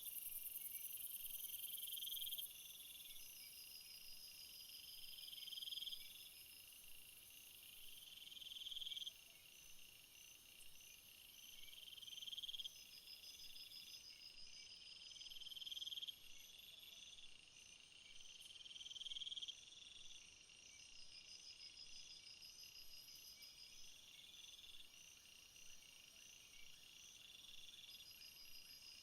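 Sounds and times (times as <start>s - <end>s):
rapid high insect chirps: 0.0s - 3.6s.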